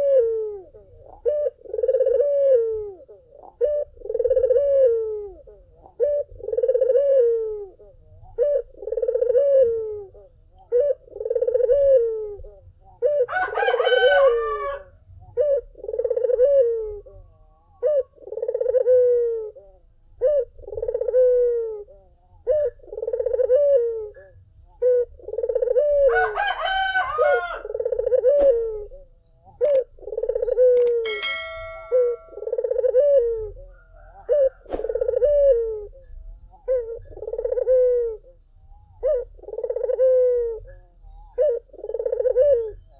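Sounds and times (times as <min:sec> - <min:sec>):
dove cooing: 0:00.0 - 0:42.9
rooster crowing: 0:13.3 - 0:14.9, 0:26.0 - 0:27.8.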